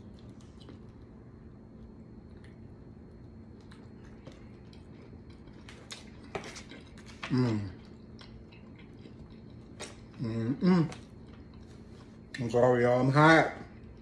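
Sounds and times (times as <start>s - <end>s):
chewing food: 0.0s - 1.2s, 1.8s - 12.6s.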